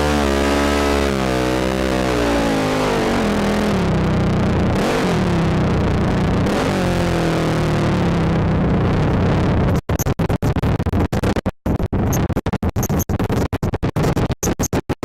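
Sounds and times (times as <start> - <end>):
atv engine running: 0.0 - 9.5.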